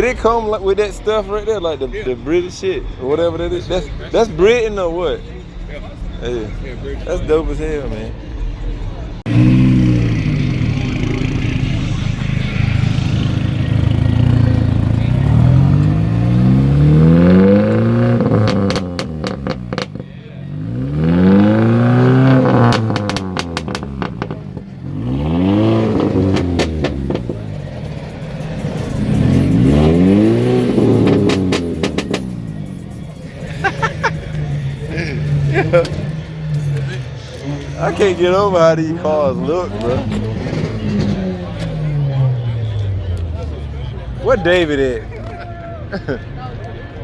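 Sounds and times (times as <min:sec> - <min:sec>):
car engine revving: 0:09.2 - 0:45.3
engine crackles: 0:09.2 - 0:47.0.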